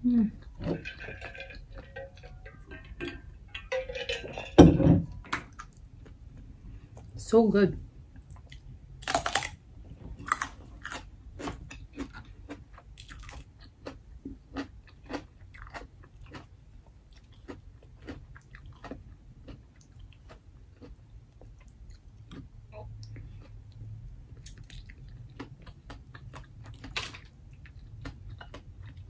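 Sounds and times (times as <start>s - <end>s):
crunchy chewing: 8.3s - 9.6s, 10.2s - 23.6s.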